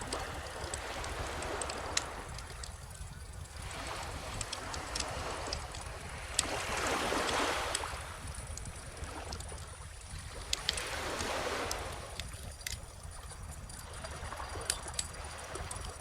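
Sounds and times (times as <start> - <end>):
bonfire crackling: 0.0 - 7.9
ocean waves washing on beach: 0.0 - 16.0.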